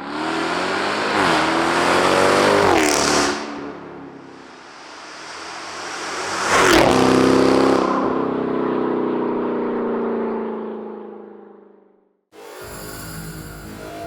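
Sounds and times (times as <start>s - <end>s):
car exhaust passing by: 0.0s - 9.2s.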